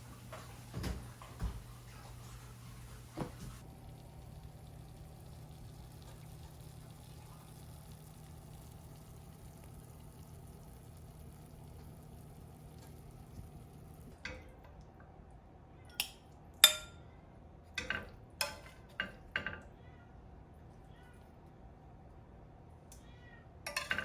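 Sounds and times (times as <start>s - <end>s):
low steady hum: 0.0s - 24.0s
utensils clinking against dishes: 15.9s - 17.0s, 17.7s - 19.7s, 23.7s - 24.0s.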